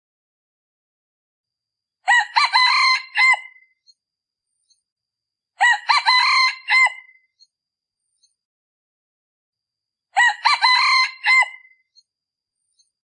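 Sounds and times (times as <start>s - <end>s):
rooster crowing: 2.1s - 3.6s, 5.6s - 7.2s, 10.2s - 11.8s.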